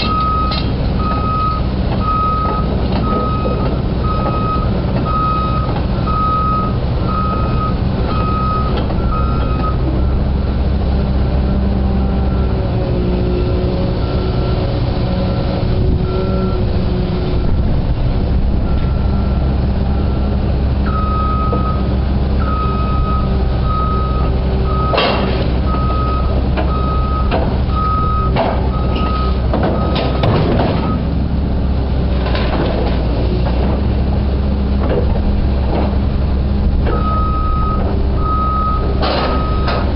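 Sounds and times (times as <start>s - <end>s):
diesel engine running: 0.0s - 39.9s
travel alarm beeping: 0.1s - 9.8s, 20.9s - 21.8s, 22.4s - 25.0s, 25.7s - 30.0s, 36.9s - 39.8s.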